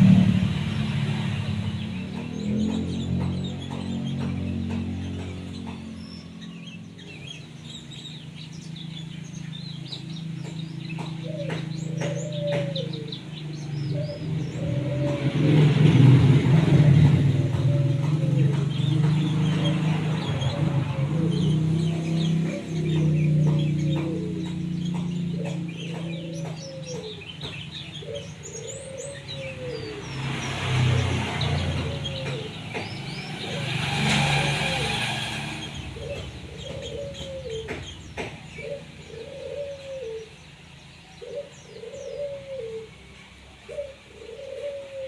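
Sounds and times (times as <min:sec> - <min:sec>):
passing vehicle: 0:00.0 - 0:45.0
songbirds chirping: 0:00.0 - 0:45.0
dove cooing: 0:10.9 - 0:30.2, 0:30.8 - 0:34.9, 0:35.8 - 0:40.4, 0:41.2 - 0:45.0.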